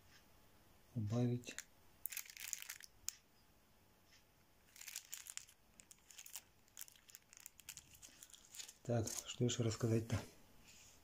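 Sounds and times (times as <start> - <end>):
crinkly rustling: 1.4 - 2.9, 4.7 - 10.1.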